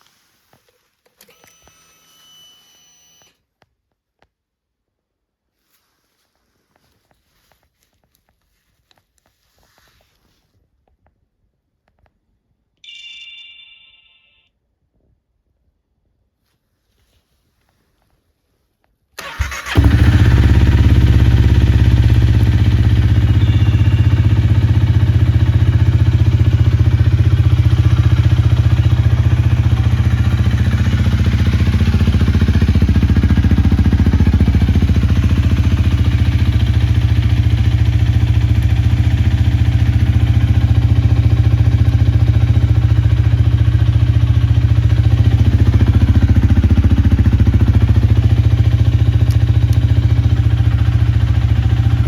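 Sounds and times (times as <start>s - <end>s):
motorcycle engine cranking: 19.2s - 22.7s
motorcycle engine idling: 19.2s - 52.0s.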